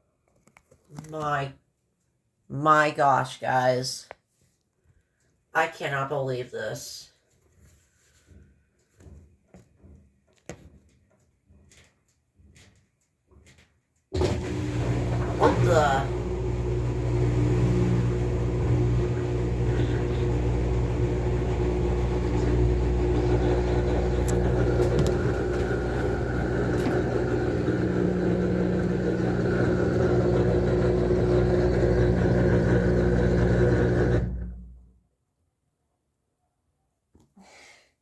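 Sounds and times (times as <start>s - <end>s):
washing machine spinning: 14.2s - 34.9s.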